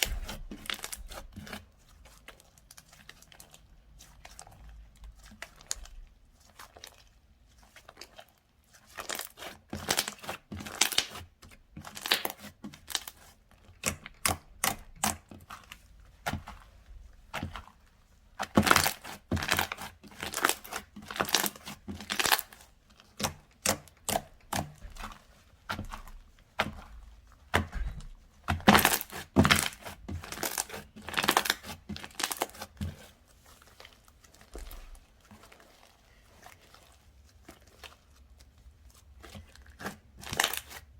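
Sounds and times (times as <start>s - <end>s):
slime crackling and popping: 8.8s - 11.2s, 11.8s - 13.2s, 18.4s - 25.1s, 28.5s - 33.0s, 33.7s - 40.8s.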